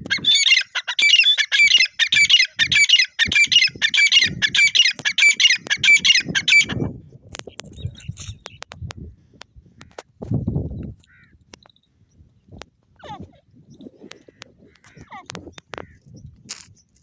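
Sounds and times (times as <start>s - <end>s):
francolin calling: 0.1s - 6.8s.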